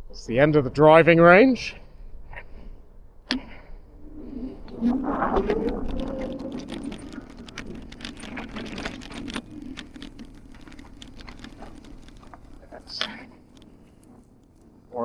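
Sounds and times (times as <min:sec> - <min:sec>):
low rumble: 0:01.8 - 0:15.0
bike rattling: 0:03.6 - 0:15.0
bike tyres crackling on rough ground: 0:03.6 - 0:15.0.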